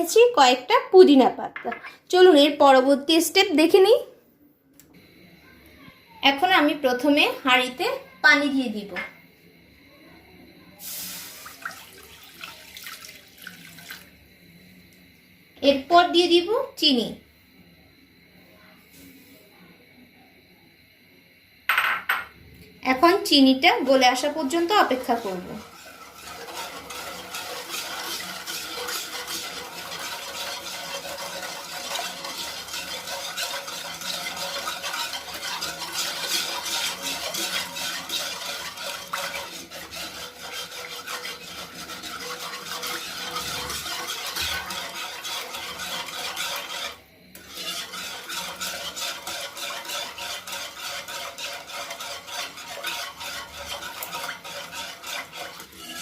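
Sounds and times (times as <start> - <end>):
spoon stirring and scraping pot: 23.8 - 56.0.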